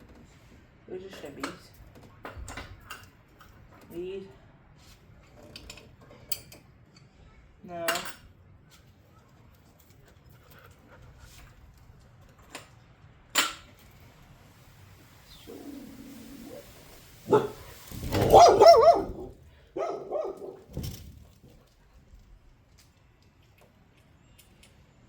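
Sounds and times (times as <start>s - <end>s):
dog barking and yelping: 15.5s - 20.7s.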